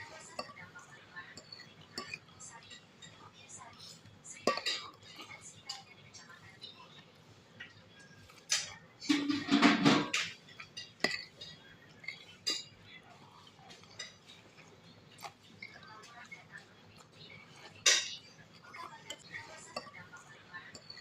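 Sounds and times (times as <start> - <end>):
utensils and dishes clinking: 0.0 - 6.7, 7.6 - 21.0
clattering and scraping: 8.4 - 11.5.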